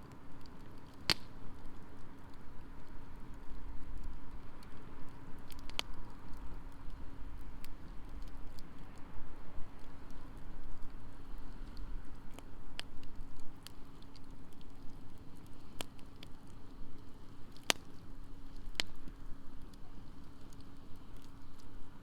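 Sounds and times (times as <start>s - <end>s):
campfire crackling: 0.0s - 22.0s
sharp fire pops: 0.8s - 1.6s.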